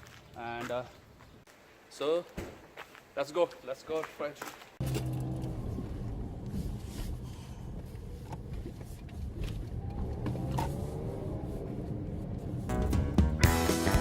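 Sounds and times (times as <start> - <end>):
car engine pulling away: 4.8 - 13.4.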